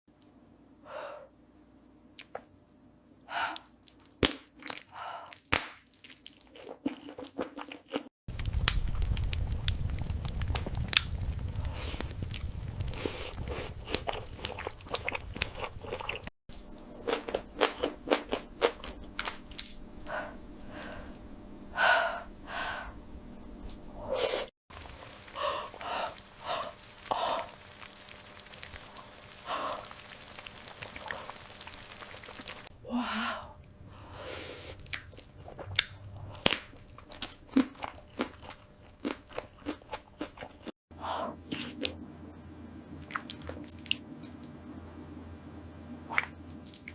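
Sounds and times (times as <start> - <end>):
wet chewing and crunching: 3.5 - 19.8, 24.8 - 32.7, 34.8 - 40.7, 43.0 - 44.5
loud low rumble: 8.3 - 14.2.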